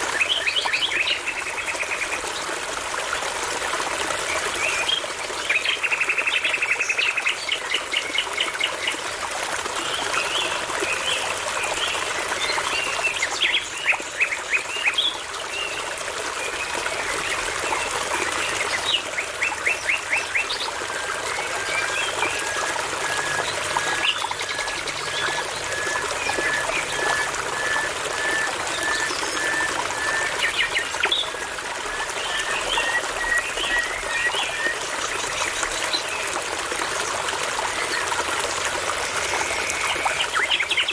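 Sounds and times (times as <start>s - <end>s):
babbling brook: 0.0s - 40.9s
songbirds singing: 9.9s - 37.0s.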